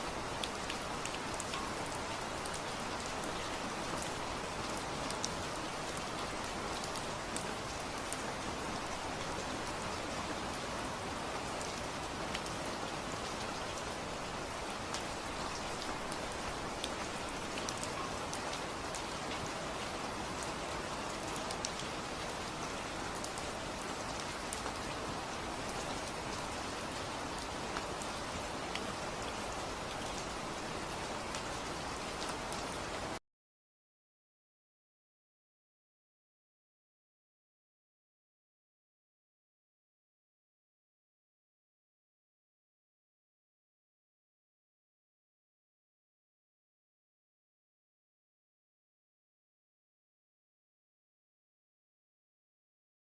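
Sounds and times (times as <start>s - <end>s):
steady rain: 0.0s - 33.2s
raindrops ticking on a surface: 0.4s - 8.2s, 14.5s - 26.7s.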